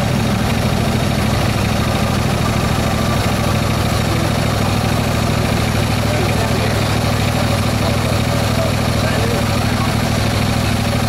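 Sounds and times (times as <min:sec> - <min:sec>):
miniature locomotive engine running: 0:00.0 - 0:11.0.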